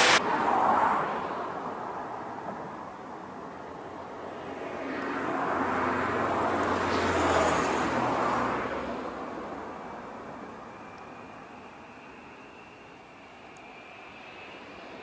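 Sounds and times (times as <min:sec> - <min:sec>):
vehicle passing by: 0:00.0 - 0:00.6.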